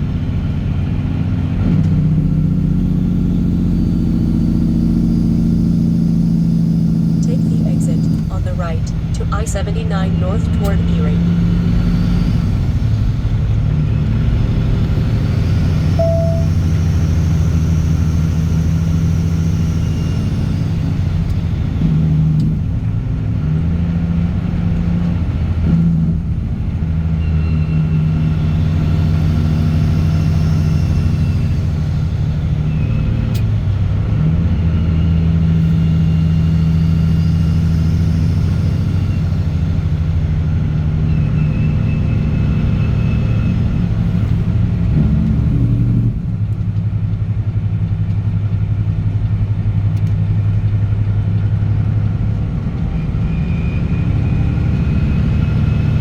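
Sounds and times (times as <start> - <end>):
diesel truck engine droning: 0.0 - 56.0.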